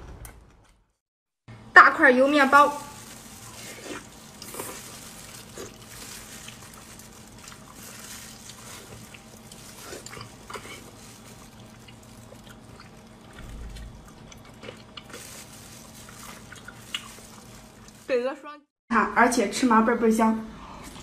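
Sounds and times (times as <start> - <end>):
wet chewing and sucking: 3.0 - 18.0.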